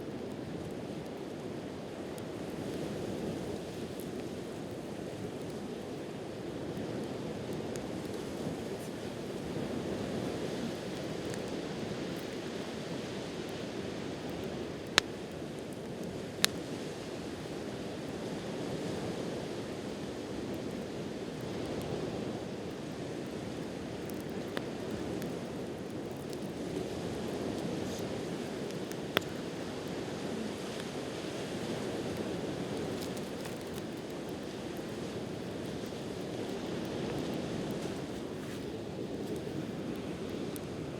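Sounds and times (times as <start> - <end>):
campfire wood popping: 0.0 - 40.9.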